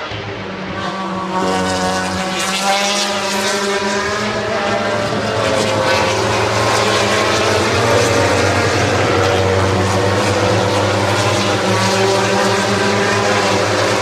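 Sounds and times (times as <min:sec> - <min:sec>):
racing motorcycle engines running: 0:00.0 - 0:14.0.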